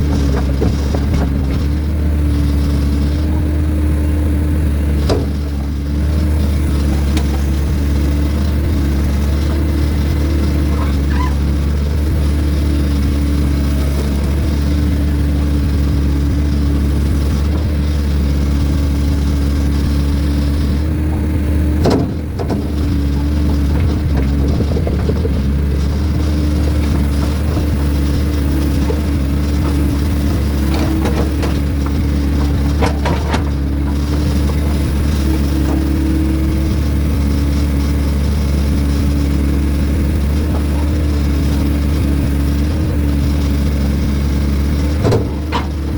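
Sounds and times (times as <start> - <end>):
heavy equipment engine running: 0.0 - 45.9
short knocks: 19.9 - 38.2.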